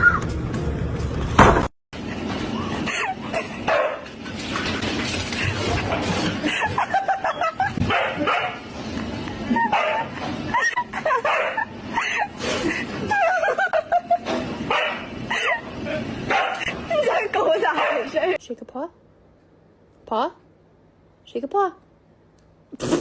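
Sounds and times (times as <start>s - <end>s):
dog barking and yipping: 3.7s - 4.1s, 7.8s - 8.6s, 11.1s - 11.7s, 14.7s - 15.1s, 16.3s - 16.7s.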